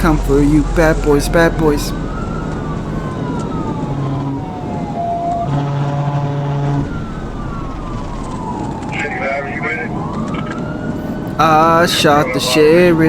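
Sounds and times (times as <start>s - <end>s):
steady low tone: 0.0s - 10.2s
police siren wailing: 0.0s - 13.0s.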